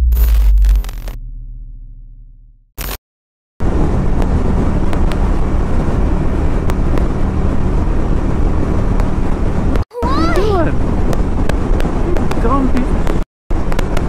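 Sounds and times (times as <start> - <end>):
wind noise on microphone: 10.5 - 14.0.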